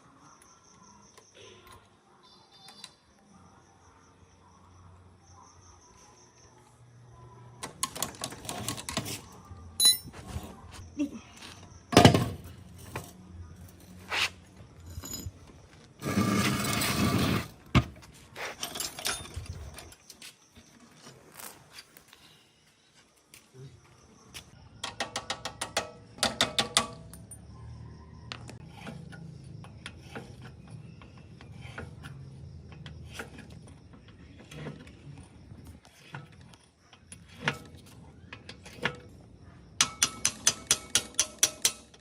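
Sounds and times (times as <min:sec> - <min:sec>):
metal parts clinking and rattling: 0:07.8 - 0:10.2, 0:14.7 - 0:15.8, 0:18.4 - 0:20.2.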